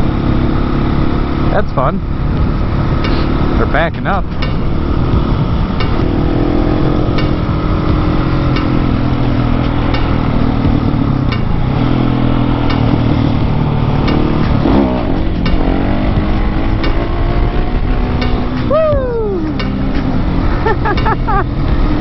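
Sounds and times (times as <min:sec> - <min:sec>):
motorcycle engine cruising: 0:00.0 - 0:22.0.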